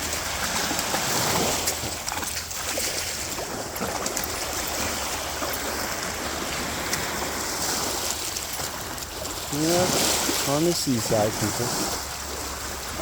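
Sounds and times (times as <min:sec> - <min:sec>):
sea water washing on shore: 0:00.0 - 0:13.0.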